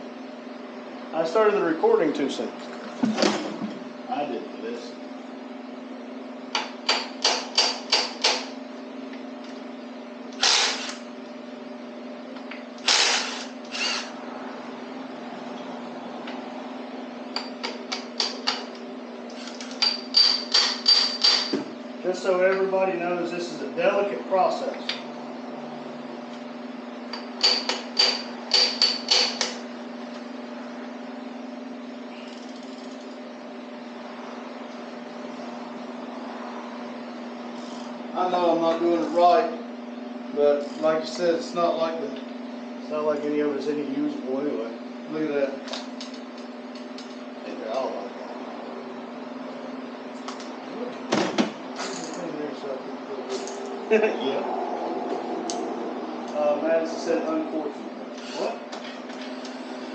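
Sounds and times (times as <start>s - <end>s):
steady hum: 0.0s - 59.9s
ratchet wrench clicking: 19.3s - 21.5s, 27.4s - 29.6s.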